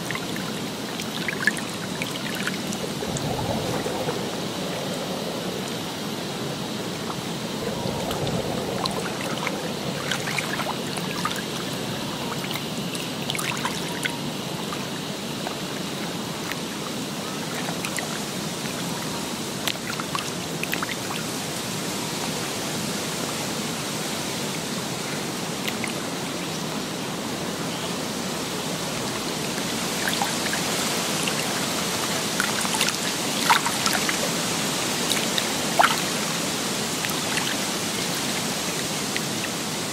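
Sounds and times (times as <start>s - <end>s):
running water: 0.0s - 39.9s
small clicks and drips: 25.6s - 26.0s.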